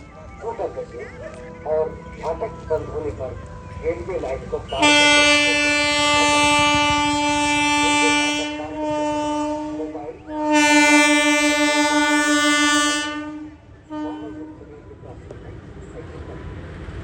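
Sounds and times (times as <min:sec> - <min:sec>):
train rumbling: 0:00.0 - 0:17.0
train horn blasts: 0:04.7 - 0:14.9.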